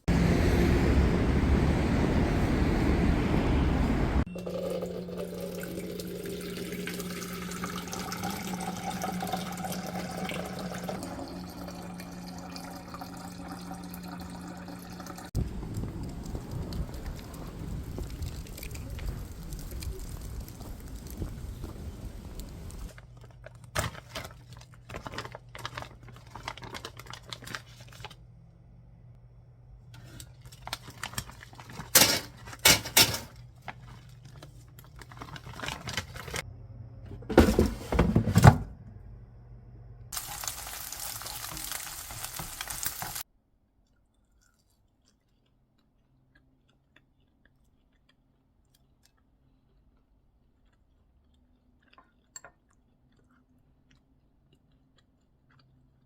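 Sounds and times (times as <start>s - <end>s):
utensils and dishes clinking: 31.8s - 33.4s.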